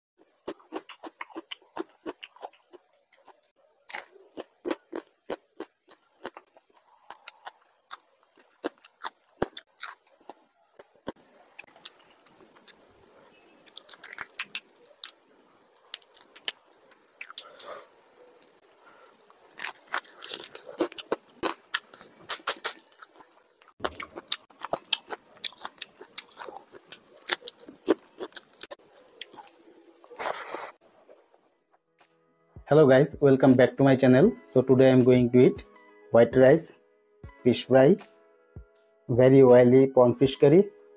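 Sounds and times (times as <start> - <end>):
chewing and crunching: 0.2 - 31.5.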